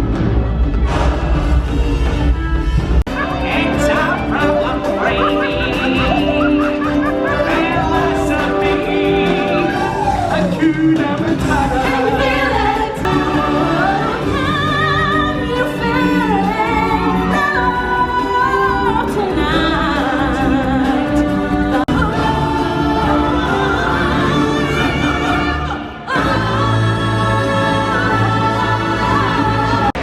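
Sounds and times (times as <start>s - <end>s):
orchestral backing: 0.0s - 30.0s
choir singing: 3.1s - 30.0s
singers with wide vibrato: 3.1s - 30.0s.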